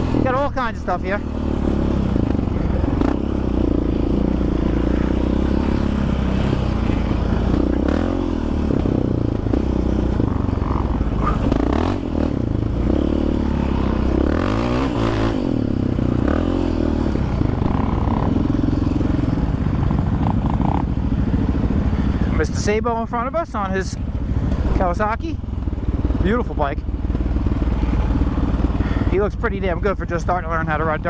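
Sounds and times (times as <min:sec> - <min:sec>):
quad bike engine revving: 0:00.0 - 0:31.0.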